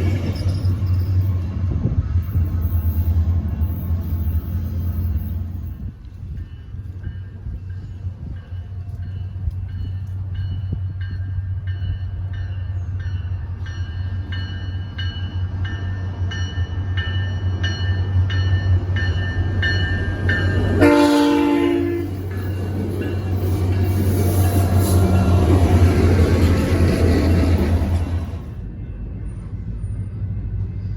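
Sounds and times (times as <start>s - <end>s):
train rumble: 0.0s - 30.9s
crossing bell ringing: 2.4s - 29.8s
train horn blast: 20.7s - 22.2s.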